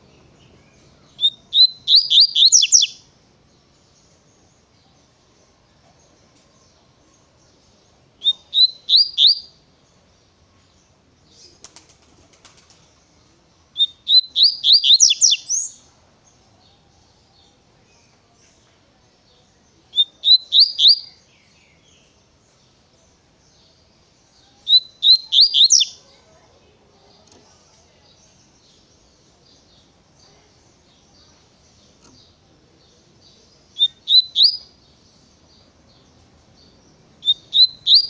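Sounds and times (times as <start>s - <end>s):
bird whistling song: 0.1s - 3.1s, 8.2s - 9.6s, 13.7s - 15.9s, 19.9s - 21.6s, 24.6s - 26.0s, 33.7s - 34.8s, 37.2s - 38.0s.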